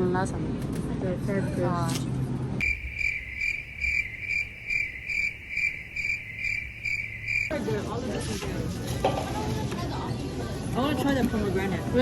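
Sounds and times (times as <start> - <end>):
crickets chirping: 2.6 - 7.6.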